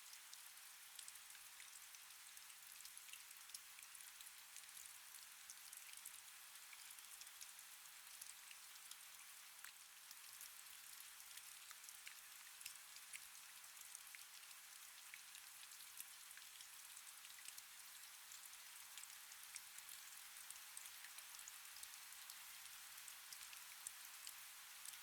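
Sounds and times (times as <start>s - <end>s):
faint steady rain: 0.0s - 25.0s.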